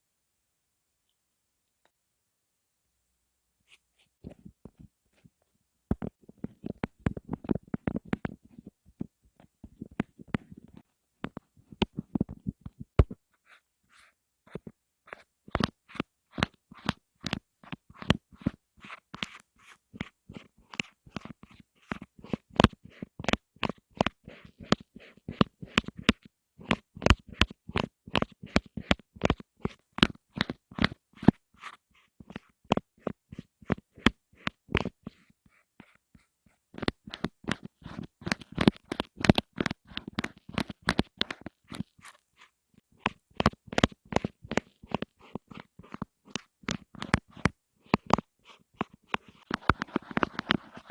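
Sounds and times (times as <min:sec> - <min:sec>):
crisp tapping and clicks: 0:04.2 - 0:50.9.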